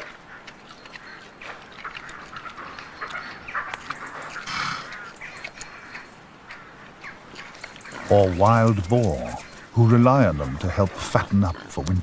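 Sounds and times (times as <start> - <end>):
animal snuffling: 0.0 - 6.1.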